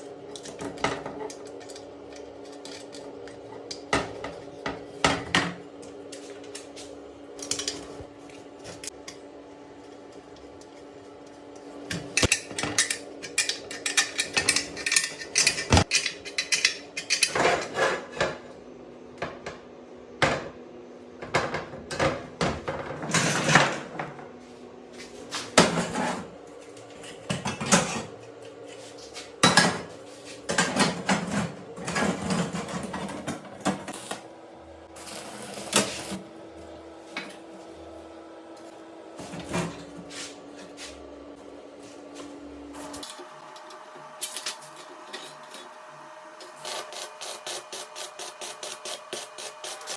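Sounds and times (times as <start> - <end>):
metal tools clanking and tapping: 12.1 - 17.6.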